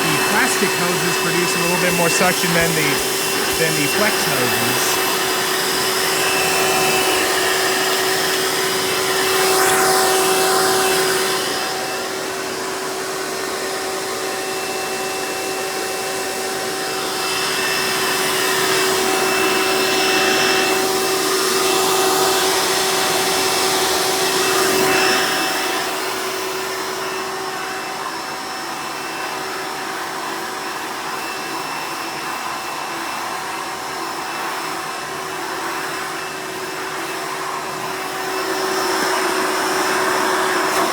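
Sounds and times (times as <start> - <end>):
vacuum cleaner motor whining: 16.2 - 40.9.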